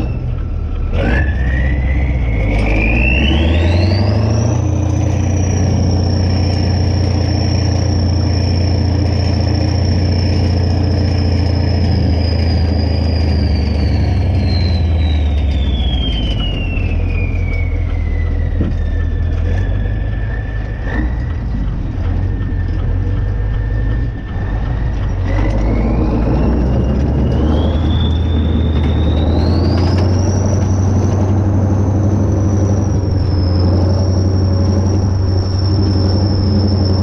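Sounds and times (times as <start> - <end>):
diesel tractor engine droning: 0.0 - 37.0
high engine whistle: 0.0 - 37.0.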